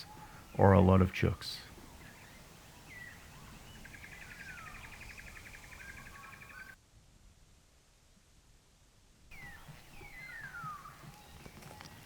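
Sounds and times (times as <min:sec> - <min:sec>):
falling bird whistle: 0:09.3 - 0:12.0.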